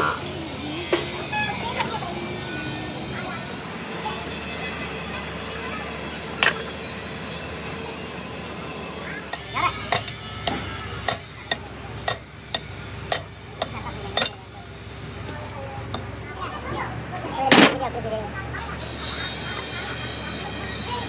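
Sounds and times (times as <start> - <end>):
metallic taps with hand tools: 6.4 - 6.7, 9.3 - 14.4.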